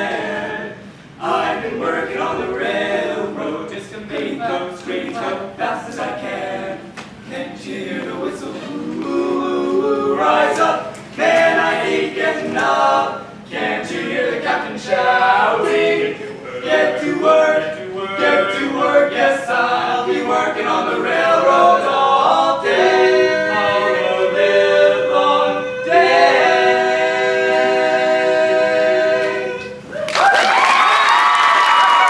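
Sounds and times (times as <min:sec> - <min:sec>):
male quartet singing a cappella: 0:00.0 - 0:29.9
audience applause and cheering: 0:29.9 - 0:32.0.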